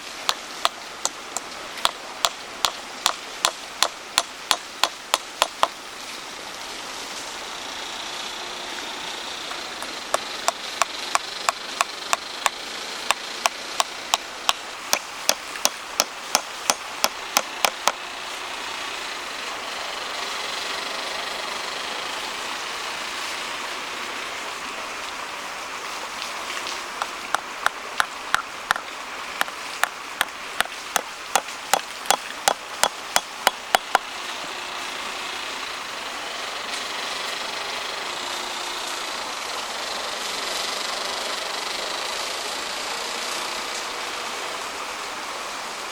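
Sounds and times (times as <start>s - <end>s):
hand tool striking wood: 0.3s - 5.8s, 9.8s - 18.0s, 27.0s - 34.0s.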